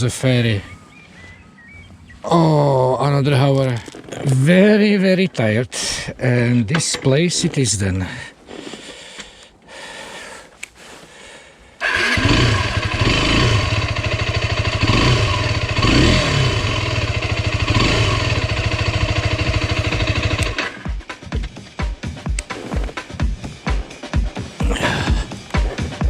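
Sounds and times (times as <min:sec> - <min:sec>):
motorcycle engine revving: 0:11.8 - 0:21.0.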